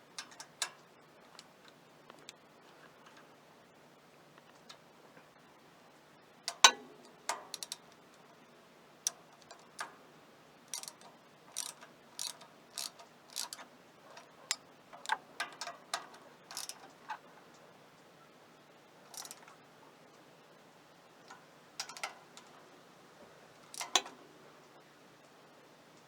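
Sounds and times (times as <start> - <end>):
ratchet wrench clicking: 7.5 - 7.8, 10.7 - 13.6, 16.5 - 16.8, 19.1 - 19.5, 23.7 - 24.1.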